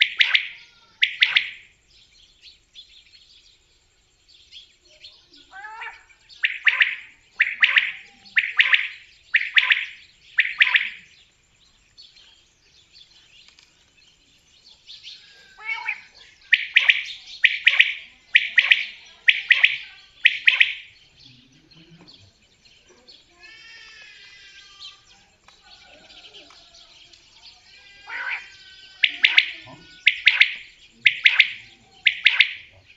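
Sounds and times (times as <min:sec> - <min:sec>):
quail calling: 0:00.0 - 0:01.7, 0:05.5 - 0:11.1, 0:15.2 - 0:21.0, 0:28.0 - 0:32.9.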